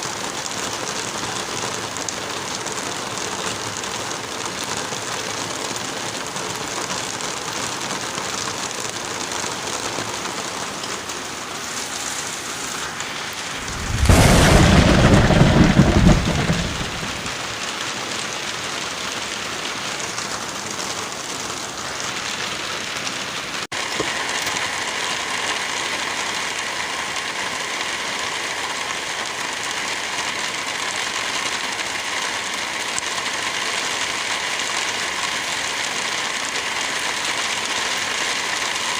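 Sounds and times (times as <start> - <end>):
heavy rain: 0.0 - 38.9
deep rumble of thunder: 13.6 - 17.4.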